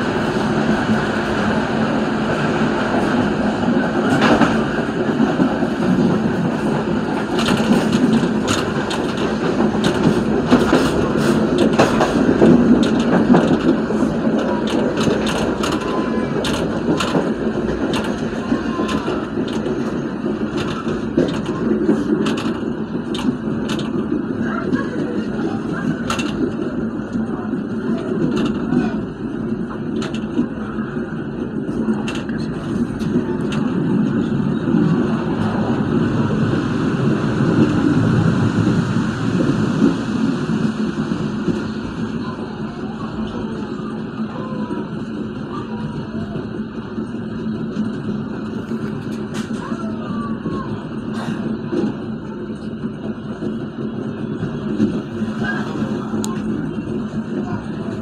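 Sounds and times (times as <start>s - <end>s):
train wheels rumbling on rails: 0.0s - 58.0s
sharp clicks and rattles: 5.3s - 29.0s.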